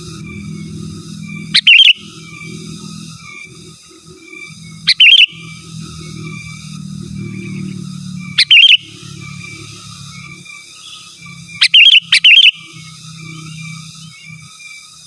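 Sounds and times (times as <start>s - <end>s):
bulbul bubbling calls: 1.5s - 2.1s, 4.9s - 5.5s, 8.4s - 8.9s, 11.6s - 12.9s.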